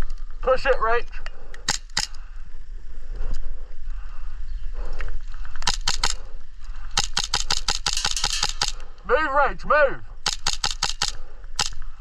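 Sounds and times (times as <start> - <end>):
airsoft guns firing: 1.6 - 2.2, 5.6 - 6.3, 6.9 - 8.9, 10.2 - 11.8.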